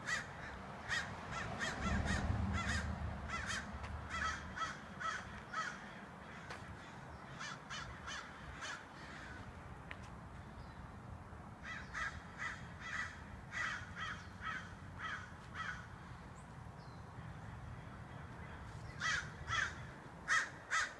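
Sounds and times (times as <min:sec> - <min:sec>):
crows cawing: 0:00.0 - 0:09.6, 0:11.6 - 0:16.2, 0:17.2 - 0:20.9
low steady rumble: 0:00.7 - 0:05.4.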